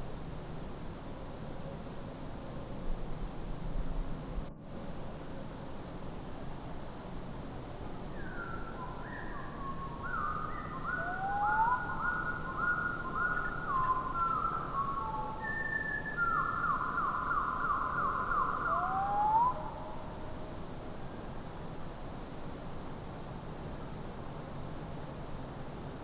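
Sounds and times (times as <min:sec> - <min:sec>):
slowed bird song whistles: 0:08.1 - 0:20.2.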